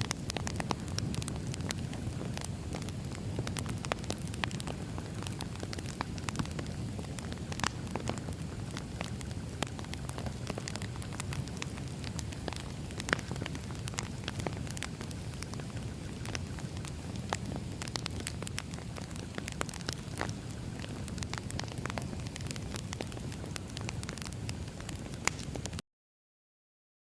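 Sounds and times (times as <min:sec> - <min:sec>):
crackling campfire: 0:00.0 - 0:25.8.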